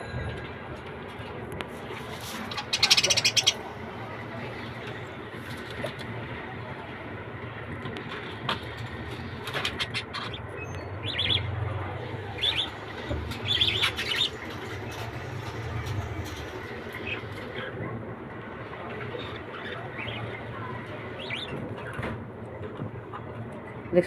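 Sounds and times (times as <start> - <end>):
wings fluttering and rustling: 1.6 - 3.8, 12.3 - 17.8
pet birds chirping: 2.4 - 3.8, 9.7 - 15.1, 19.2 - 21.6.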